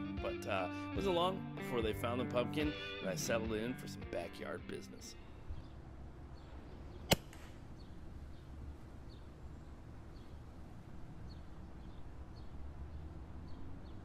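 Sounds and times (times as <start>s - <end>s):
bird chirping: 5.1s - 14.0s.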